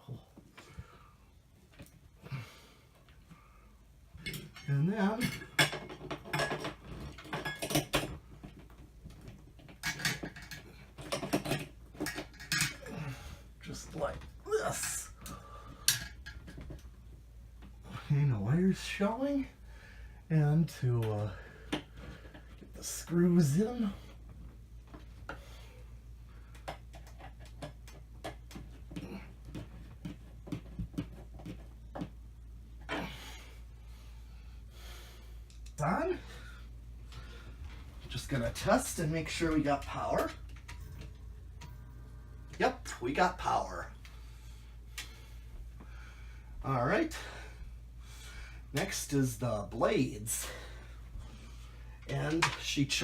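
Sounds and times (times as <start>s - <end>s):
low steady hum: 0.0s - 53.0s
hands handling wiring and hardware: 26.5s - 32.9s.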